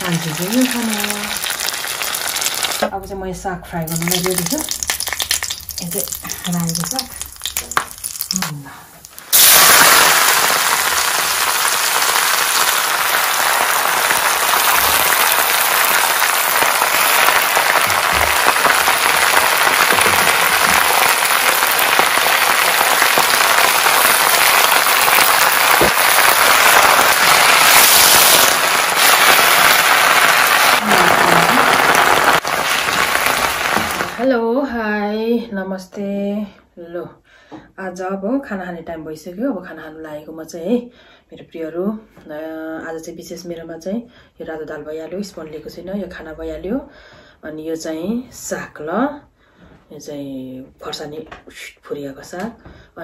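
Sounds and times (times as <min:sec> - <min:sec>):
greens sizzling in oil: 0:00.0 - 0:02.9, 0:03.9 - 0:34.2
greens hitting hot oil: 0:00.0 - 0:03.0, 0:03.8 - 0:34.2.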